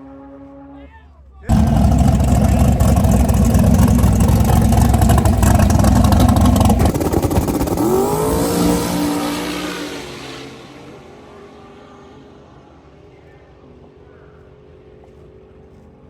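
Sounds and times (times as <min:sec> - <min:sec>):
drag car engine at full throttle: 0:01.5 - 0:13.8.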